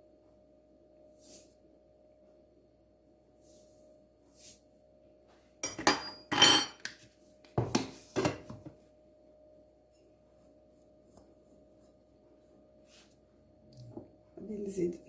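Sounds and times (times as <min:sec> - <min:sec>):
utensils and bowls clattering: 0:05.6 - 0:06.9.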